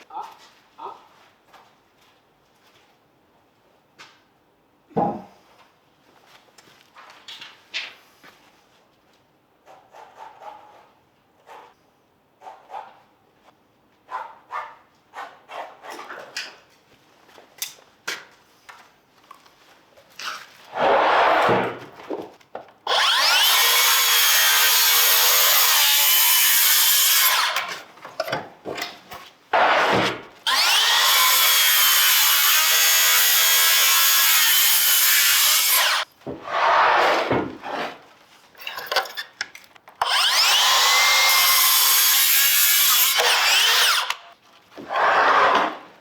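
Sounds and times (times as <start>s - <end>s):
power tool cutting wood: 22.9s - 27.7s, 29.6s - 36.0s, 40.0s - 44.3s.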